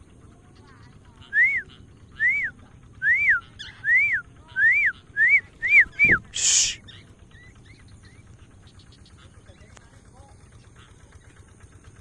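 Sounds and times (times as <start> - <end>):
person whistling: 2.2 - 6.8
short hiss: 6.4 - 6.8.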